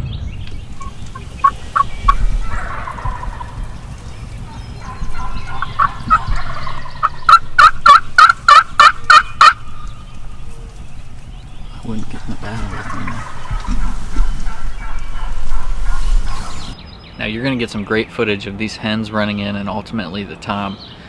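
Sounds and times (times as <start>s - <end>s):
turkey calling: 0.4s - 16.8s.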